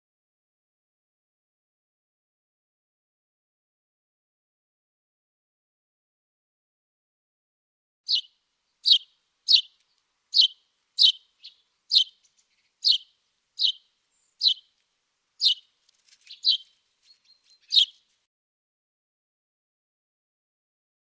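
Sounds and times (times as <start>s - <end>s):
small songbird chirping: 8.1s - 18.3s.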